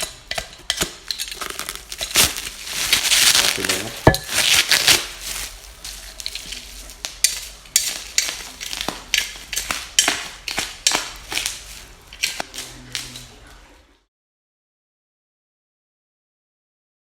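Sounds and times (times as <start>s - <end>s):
packaging rustling and crinkling: 1.2s - 9.5s.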